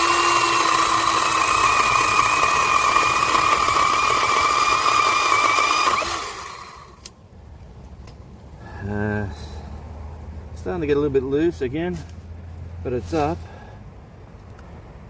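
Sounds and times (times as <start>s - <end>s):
electric chainsaw high whine: 0.0s - 7.0s.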